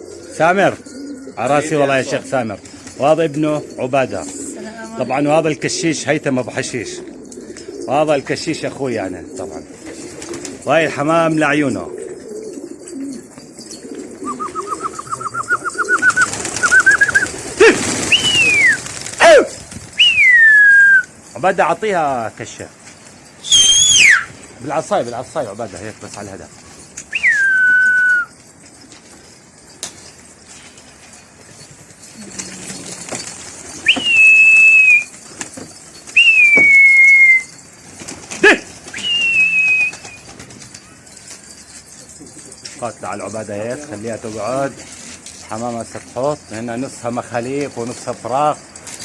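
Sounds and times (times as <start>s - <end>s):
pigeons cooing: 0.0s - 49.0s
loud downward-sliding whistle: 18.1s - 18.8s, 20.0s - 21.1s, 23.4s - 24.3s, 27.2s - 28.3s, 33.8s - 35.1s, 36.2s - 37.5s, 39.0s - 40.1s
short sharp call: 23.4s - 24.3s
short high chirps: 23.4s - 24.4s.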